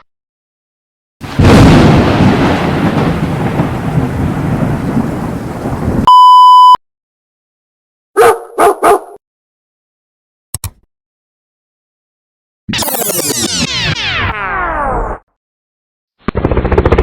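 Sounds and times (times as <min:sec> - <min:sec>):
loud rumbling crash: 0:01.2 - 0:06.1
high-pitched censor beep: 0:06.1 - 0:06.8.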